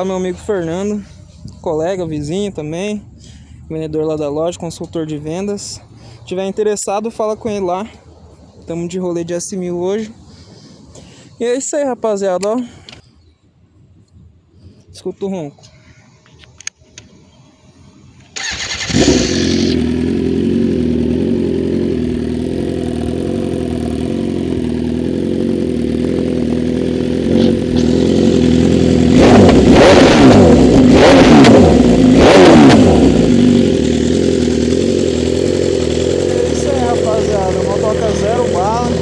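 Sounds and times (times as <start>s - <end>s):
motorcycle engine starting and idling: 18.2s - 39.0s
motorcycle engine revving: 18.4s - 39.0s.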